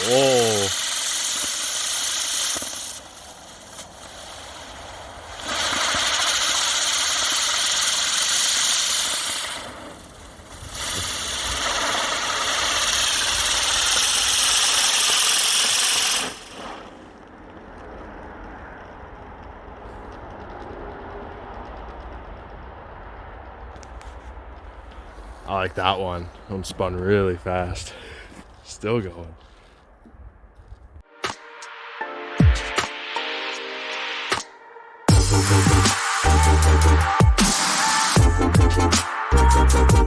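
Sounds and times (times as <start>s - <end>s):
spinning firework hissing: 0.0s - 26.8s, 35.1s - 40.0s
quiet rumble: 16.9s - 31.0s.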